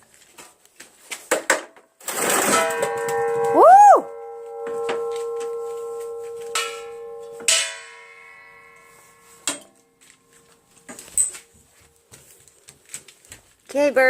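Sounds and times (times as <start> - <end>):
metal clanging with ringing: 2.1 - 11.8.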